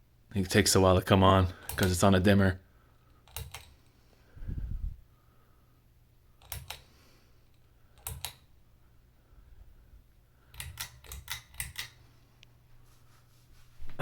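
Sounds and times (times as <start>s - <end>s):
faint low hum: 0.0s - 14.0s
pull-chain switch clicking: 6.4s - 6.9s, 10.5s - 12.0s.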